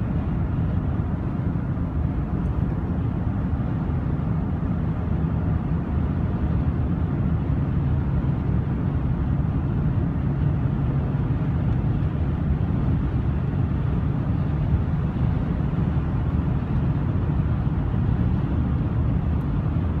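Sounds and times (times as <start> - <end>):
light aircraft engine running: 0.0 - 20.0.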